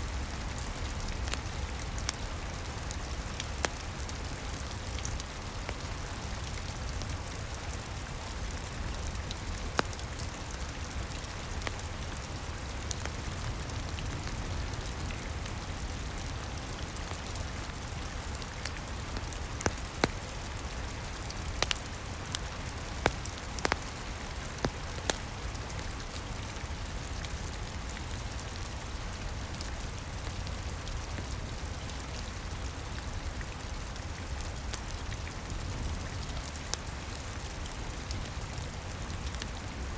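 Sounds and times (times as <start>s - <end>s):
steady rain: 0.0s - 39.9s
wood fire crackling pops: 1.1s - 8.0s, 8.6s - 15.0s, 17.0s - 26.2s.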